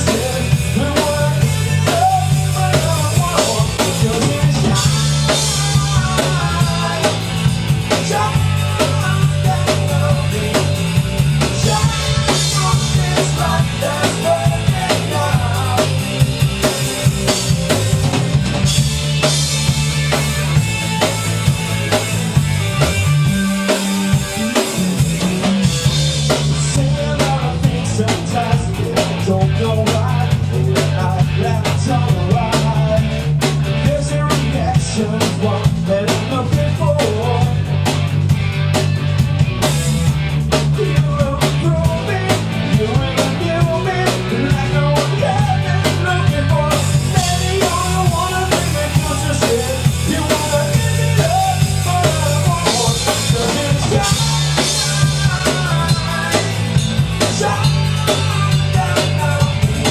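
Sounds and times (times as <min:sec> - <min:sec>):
bass guitar: 0:00.0 - 0:59.9
drum kit beat: 0:00.0 - 0:59.9
electric guitar: 0:00.0 - 0:59.9.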